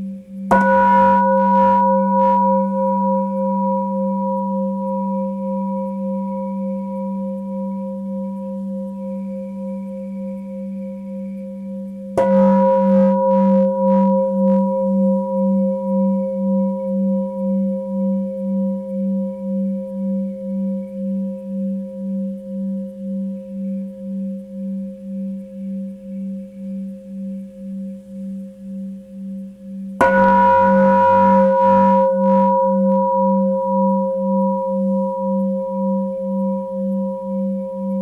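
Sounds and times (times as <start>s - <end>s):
singing bowl ringing: 0.5s - 10.7s, 12.2s - 18.7s, 30.0s - 38.0s.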